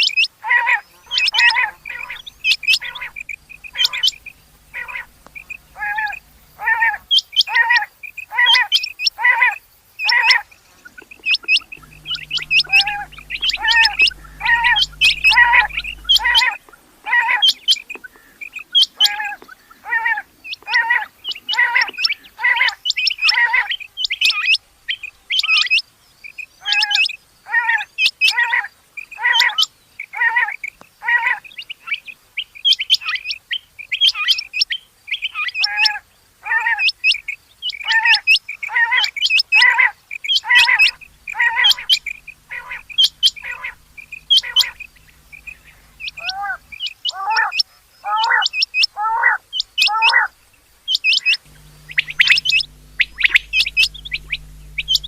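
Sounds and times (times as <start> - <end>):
quail calling: 0.5 - 7.8, 40.5 - 50.3
faint low hum: 0.9 - 7.8, 10.5 - 18.7, 40.5 - 46.8, 51.4 - 55.0.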